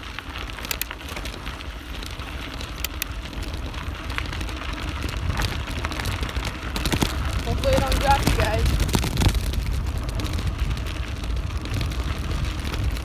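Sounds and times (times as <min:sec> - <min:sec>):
bicycle tyres on dirt trail: 0:00.0 - 0:13.0
wind buffeting microphone: 0:00.0 - 0:13.0
sharp clicks and rattles: 0:00.5 - 0:01.6, 0:02.6 - 0:04.2, 0:05.2 - 0:10.8.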